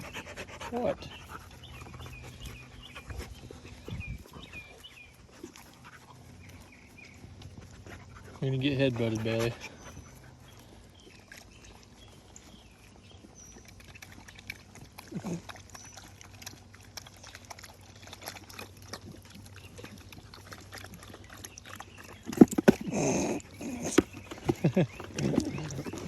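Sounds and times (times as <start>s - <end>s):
low animal grunt: 15.0s - 15.6s, 22.4s - 26.0s
animals scuffling and knocking: 22.2s - 26.0s.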